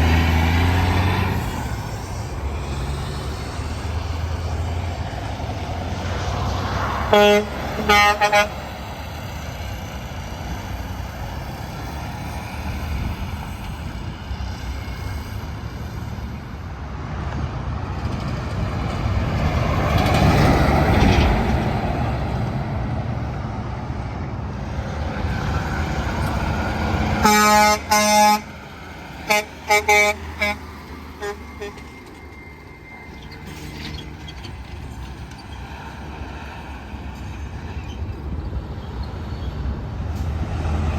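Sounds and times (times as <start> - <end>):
highway traffic passing: 0.0 - 40.9
truck air horn blasts: 7.0 - 8.6, 27.2 - 28.6, 29.2 - 32.0.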